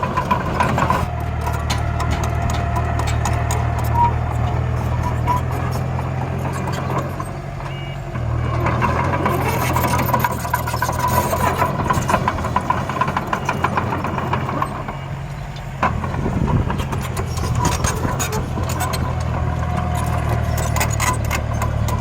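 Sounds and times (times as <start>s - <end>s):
soil and stones rattling: 0.0s - 22.0s
toy engine rumble: 8.7s - 15.0s, 15.8s - 22.0s.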